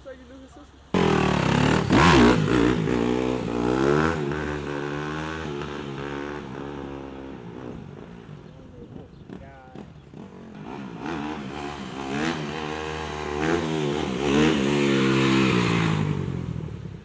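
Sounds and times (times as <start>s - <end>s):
dirt bike engine revving: 1.0s - 8.4s, 9.3s - 17.0s.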